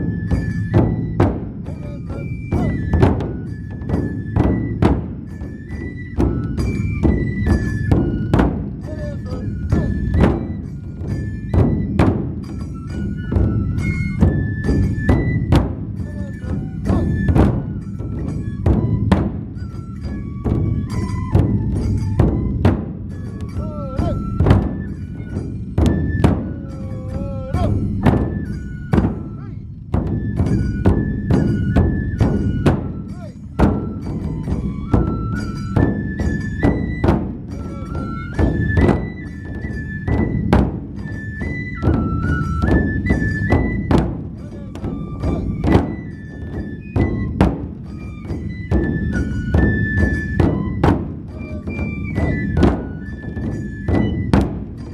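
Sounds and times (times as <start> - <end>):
bamboo flute melody: 0.0 - 54.9
barrel drums beating: 0.0 - 54.9
big drum strikes: 27.6 - 54.9.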